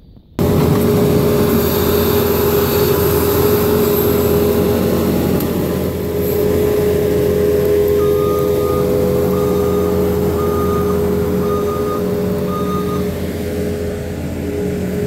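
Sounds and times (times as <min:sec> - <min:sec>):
constant whine: 0:00.0 - 0:15.0
diesel engine running: 0:00.4 - 0:15.0.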